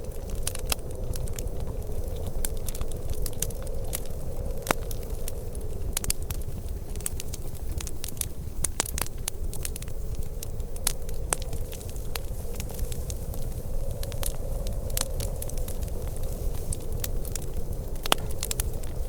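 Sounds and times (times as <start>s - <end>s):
steady low rumble: 0.0s - 19.0s
wood fire crackling: 0.0s - 19.0s
sharp pops of fire: 14.0s - 19.0s.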